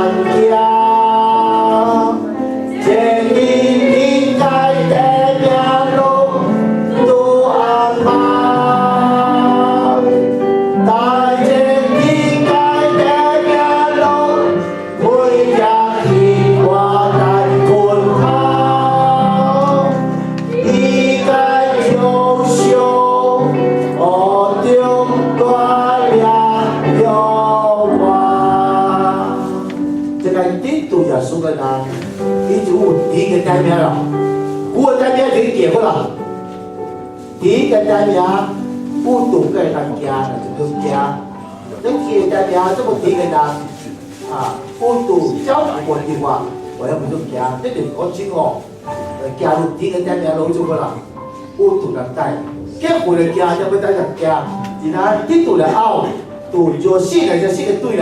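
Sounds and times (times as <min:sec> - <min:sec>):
group singing worship song: 0:00.0 - 0:30.4
instrumental accompaniment: 0:00.0 - 0:58.0.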